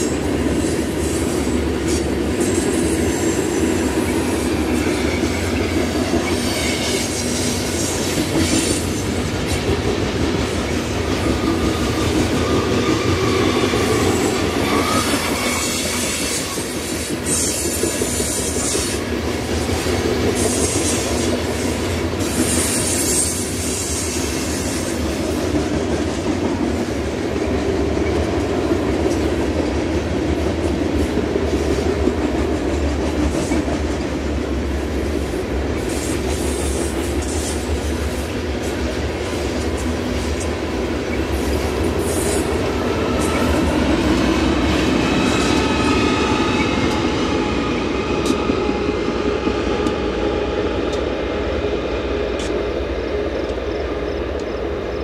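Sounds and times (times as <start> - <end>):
train wheels squealing: 0.0 - 9.6, 10.5 - 25.6, 35.8 - 50.8
freight train wheels rumbling: 0.0 - 55.0.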